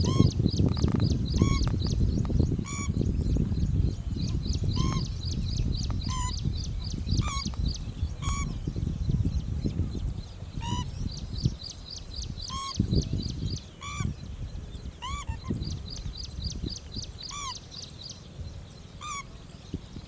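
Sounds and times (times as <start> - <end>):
bird short pitched calls: 0.0 - 2.0, 4.2 - 5.2, 5.8 - 7.6, 8.2 - 8.6, 12.4 - 12.8, 13.8 - 14.1, 15.0 - 15.7, 17.2 - 17.6, 19.0 - 19.4.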